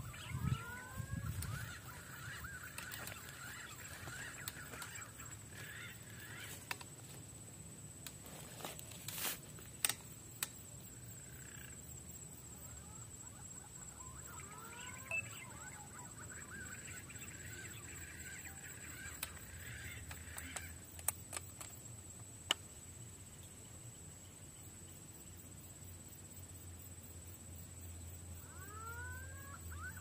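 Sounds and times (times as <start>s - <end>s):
faint bird calls: 0.0s - 7.2s, 12.5s - 21.0s, 28.4s - 30.0s
sharp clicks: 9.8s - 10.6s, 19.1s - 21.8s.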